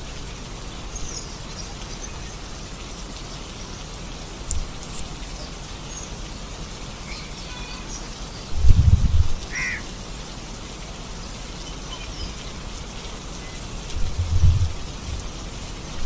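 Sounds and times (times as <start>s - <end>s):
steady rain falling: 0.0s - 16.0s
faint high chirps: 4.6s - 8.5s.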